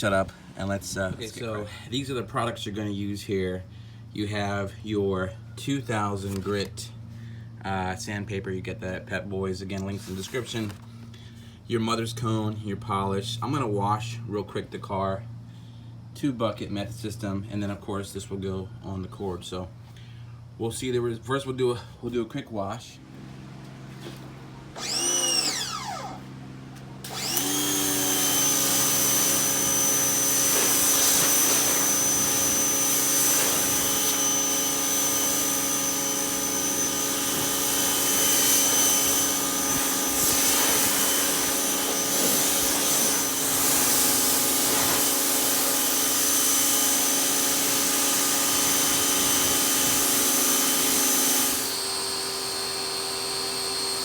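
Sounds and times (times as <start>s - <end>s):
electric motor whining: 24.0s - 26.4s, 27.0s - 54.0s.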